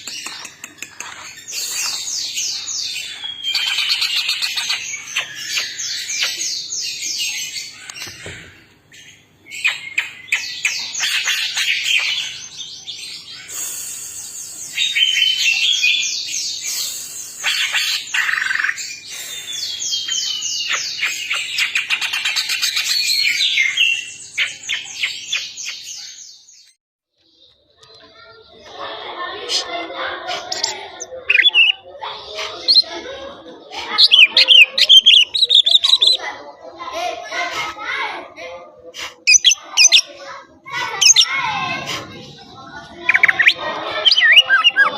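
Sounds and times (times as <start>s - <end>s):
bird singing trills and whistles: 0.0s - 8.2s, 9.0s - 26.7s, 30.5s - 32.9s, 33.9s - 36.2s, 39.3s - 40.1s, 43.0s - 44.9s.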